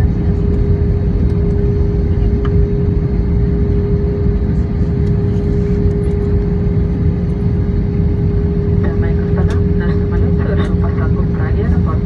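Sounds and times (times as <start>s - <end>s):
airplane cabin low rumble: 0.0s - 12.0s
constant mid-pitched tone: 8.4s - 12.0s.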